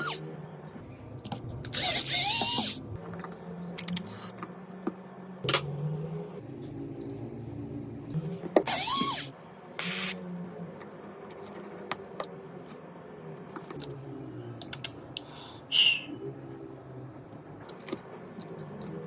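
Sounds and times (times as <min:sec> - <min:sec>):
brief squeak: 0:00.0 - 0:00.2, 0:01.7 - 0:02.8, 0:08.6 - 0:10.1
short hissing bursts: 0:08.7 - 0:10.2.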